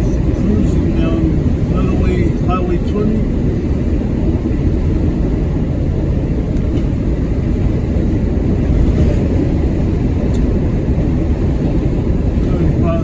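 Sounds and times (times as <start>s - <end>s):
road noise: 0.0s - 13.0s
truck engine rumble: 0.0s - 13.0s.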